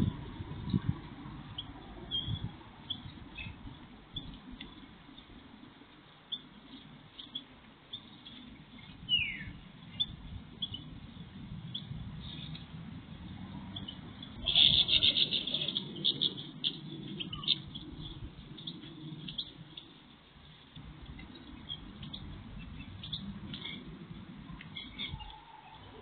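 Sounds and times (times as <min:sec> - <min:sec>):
low background rumble: 0:00.0 - 0:26.0
small birds chirping: 0:00.0 - 0:26.0
downward-sweeping bird call: 0:14.4 - 0:17.8.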